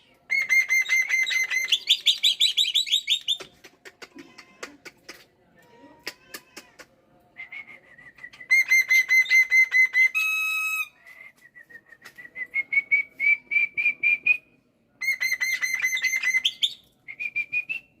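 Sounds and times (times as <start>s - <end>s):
starling singing whistled notes: 0.3s - 3.5s, 7.4s - 10.9s, 15.0s - 18.0s.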